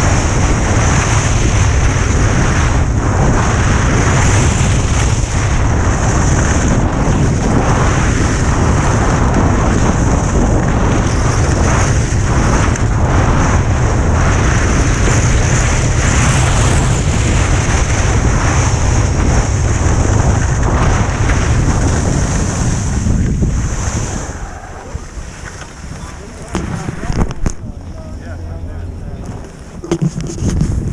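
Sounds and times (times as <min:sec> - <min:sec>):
skis sliding on snow: 0:00.0 - 0:13.4, 0:14.1 - 0:27.1
wind buffeting microphone: 0:00.0 - 0:30.9.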